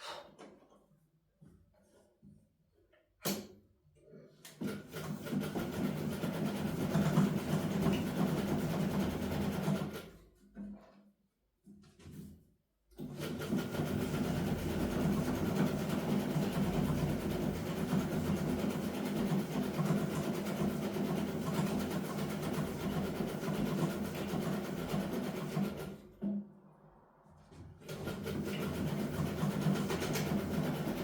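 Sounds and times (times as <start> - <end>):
electric sewing machine running: 13.1 - 26.0, 27.9 - 31.0.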